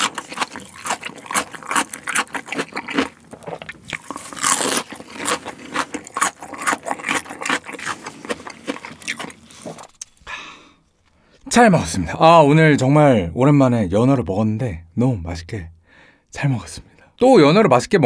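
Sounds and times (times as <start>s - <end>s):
crunchy chewing: 0.0s - 10.3s.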